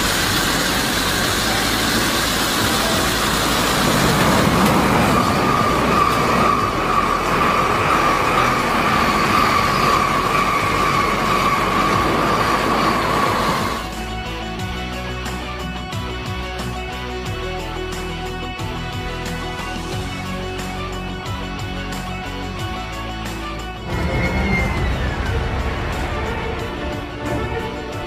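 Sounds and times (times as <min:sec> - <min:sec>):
train rushing past: 0:00.0 - 0:14.1, 0:23.6 - 0:28.0
high steady whine: 0:00.0 - 0:14.4.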